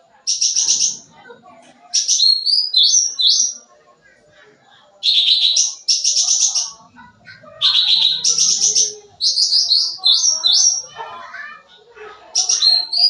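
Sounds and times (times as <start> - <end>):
songbird trilled chattering: 1.9 - 3.6, 5.0 - 6.8, 7.6 - 11.0.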